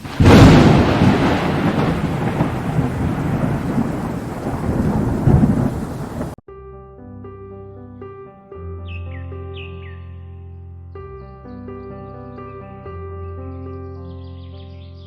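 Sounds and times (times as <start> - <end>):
rain rushing: 0.0 - 6.4
thunder crack: 0.0 - 6.4
thunder rumbling: 0.0 - 6.4
soft music with held notes: 6.5 - 15.0.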